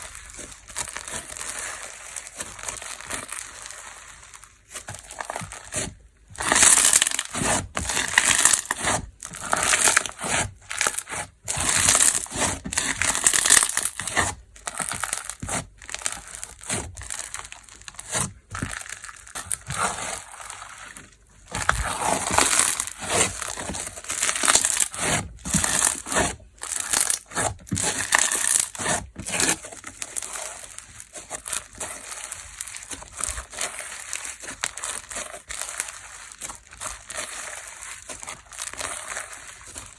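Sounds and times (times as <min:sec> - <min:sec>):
crunchy slime squishing: 0:00.0 - 0:39.9.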